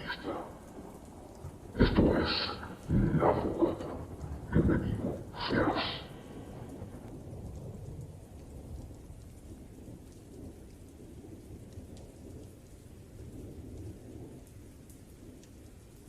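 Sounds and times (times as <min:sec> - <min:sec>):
thunder rumbling: 0:00.0 - 0:14.5
rain: 0:00.0 - 0:16.0
raindrops ticking: 0:00.0 - 0:16.0.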